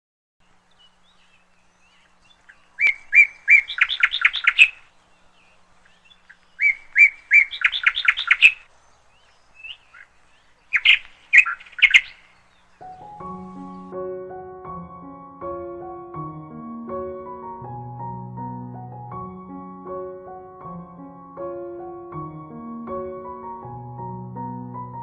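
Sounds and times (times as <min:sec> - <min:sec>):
bird chirps: 0:00.4 - 0:14.0
songbird singing: 0:00.4 - 0:14.3.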